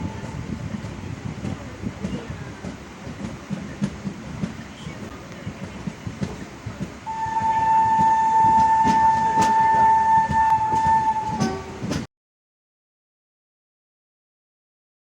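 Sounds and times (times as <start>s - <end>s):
train rumbling: 0.0s - 12.1s
long train horn blast: 7.1s - 12.1s.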